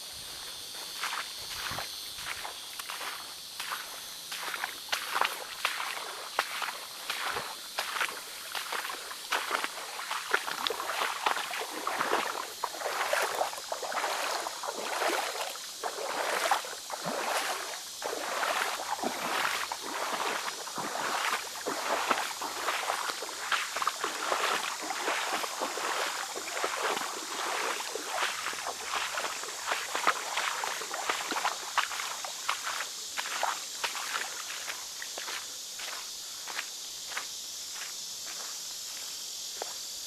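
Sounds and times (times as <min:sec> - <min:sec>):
footsteps sloshing through water: 0:00.0 - 0:40.0.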